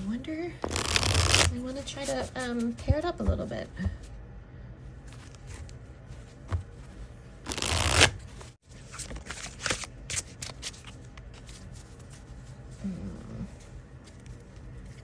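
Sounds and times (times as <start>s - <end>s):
cards being shuffled by hand: 0.6s - 2.7s, 5.1s - 12.7s.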